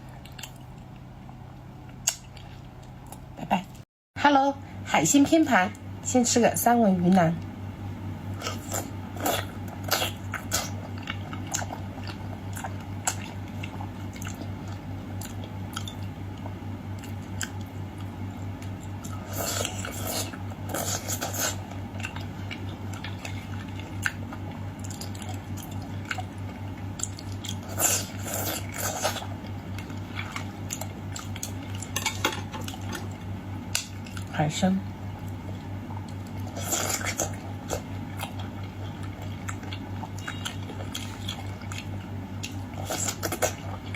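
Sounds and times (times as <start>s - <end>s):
steady low hum: 0.0s - 43.9s
wet chewing mouth clicks: 1.9s - 3.3s, 35.2s - 43.9s.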